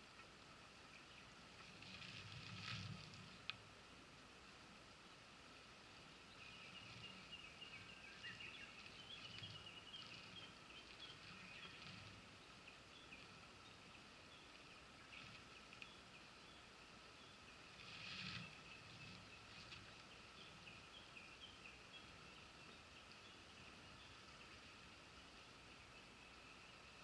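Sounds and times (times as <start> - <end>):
mountain stream murmur: 0.0 - 27.0
small bird singing: 6.1 - 27.0.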